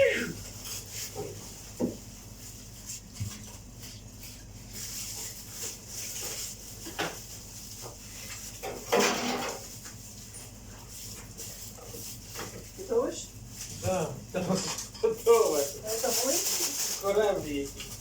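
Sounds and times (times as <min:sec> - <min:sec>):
dog whining: 0:00.0 - 0:00.4
loud noise: 0:00.0 - 0:00.4.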